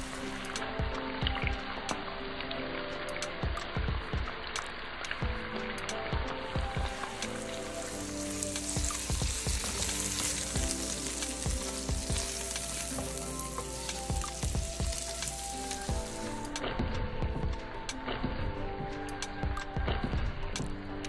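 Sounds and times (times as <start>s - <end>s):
food sizzling in a wok: 0.0s - 1.1s, 4.0s - 16.6s.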